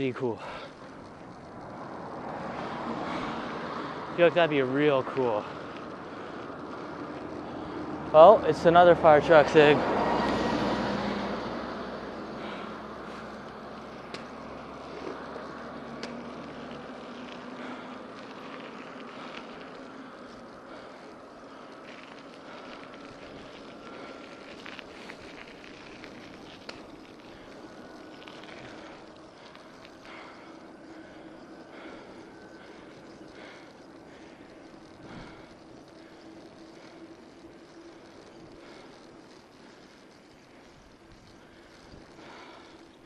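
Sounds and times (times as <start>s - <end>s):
fire truck engine: 0.0s - 43.0s
wind and road noise: 0.0s - 43.0s
faint clicks: 12.4s - 43.0s.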